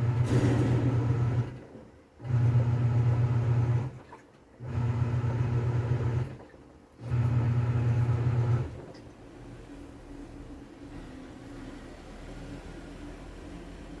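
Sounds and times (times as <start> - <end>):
washing machine motor humming: 0.0 - 8.9.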